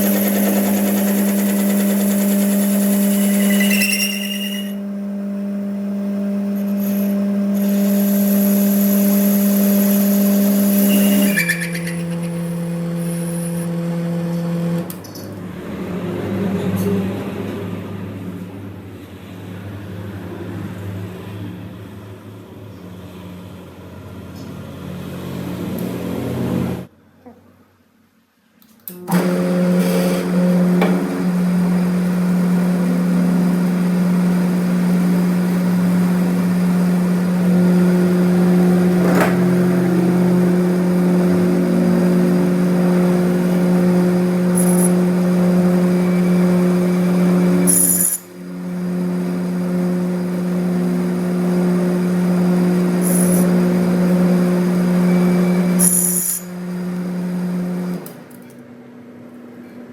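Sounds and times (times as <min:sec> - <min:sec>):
electric motor humming: 0:00.0 - 0:14.9, 0:29.1 - 0:58.2.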